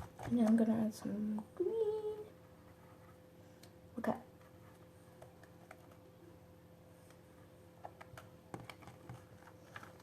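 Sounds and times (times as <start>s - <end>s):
faint steady hum: 0.0s - 10.0s
faint clicks and taps: 4.4s - 6.1s, 7.8s - 10.0s.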